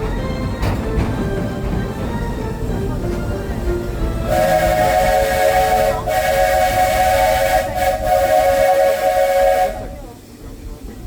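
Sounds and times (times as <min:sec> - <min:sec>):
steam locomotive whistle: 0:04.3 - 0:10.2.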